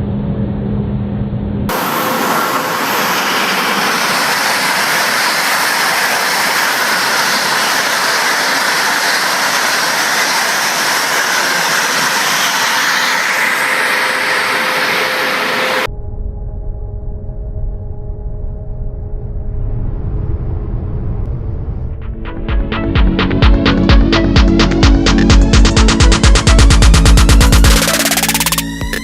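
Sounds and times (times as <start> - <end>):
high-speed train rushing hiss: 1.7 - 15.9, 22.6 - 28.7.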